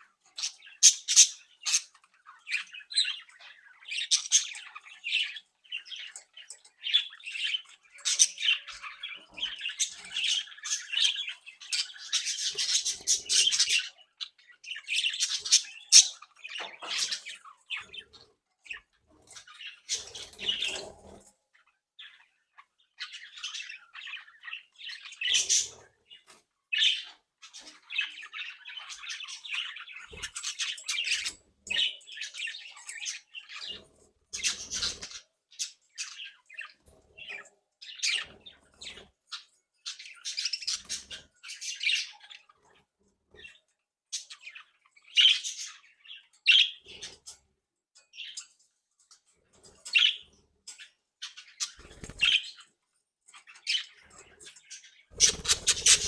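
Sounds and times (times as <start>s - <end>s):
budgerigars chattering: 55.1s - 56.0s.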